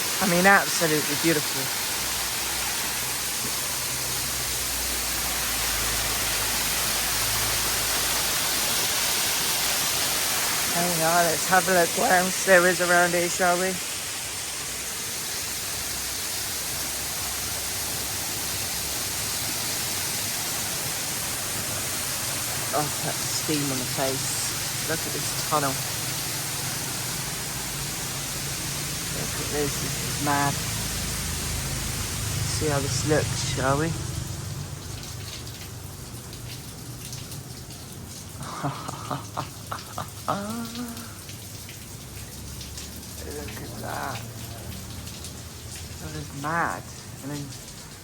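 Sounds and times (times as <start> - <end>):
waterfall rushing: 0.0 - 34.5, 38.3 - 41.4.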